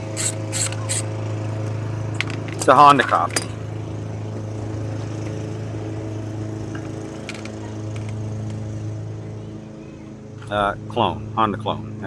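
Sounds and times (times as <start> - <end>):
hand tools clicking: 0.0 - 3.6, 6.7 - 8.7
steady low hum: 0.0 - 12.0.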